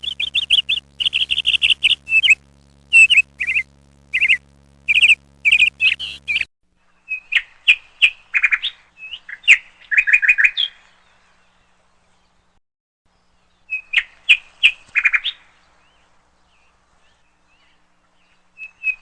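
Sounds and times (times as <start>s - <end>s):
small birds chirping: 0.0s - 6.5s.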